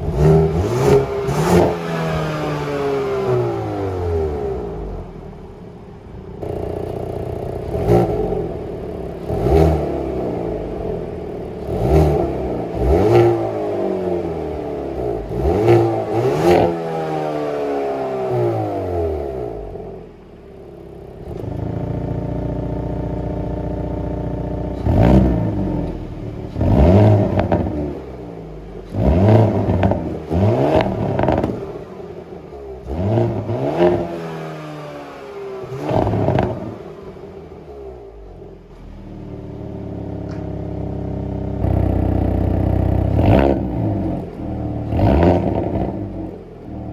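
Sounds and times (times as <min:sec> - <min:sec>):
car engine idling: 0:00.0 - 0:46.9
car engine revving: 0:00.0 - 0:46.9
exhaust crackles and pops: 0:20.7 - 0:28.0, 0:28.8 - 0:34.4, 0:35.6 - 0:37.3, 0:39.6 - 0:46.9.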